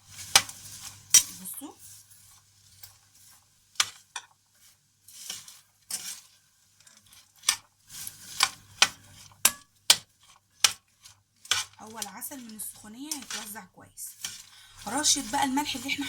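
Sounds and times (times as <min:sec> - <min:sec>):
popcorn rustling swishes: 0:00.0 - 0:16.0.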